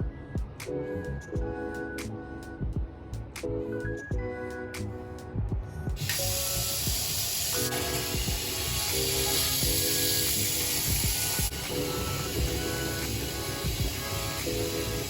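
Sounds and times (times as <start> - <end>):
background music: 0.0 - 15.0
water spraying hiss: 6.0 - 15.0.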